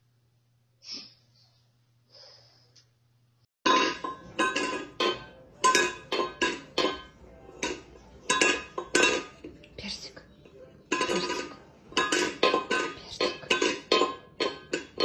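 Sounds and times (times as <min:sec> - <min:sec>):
metal bowl clanking on floor: 0:03.7 - 0:09.6, 0:10.4 - 0:15.0.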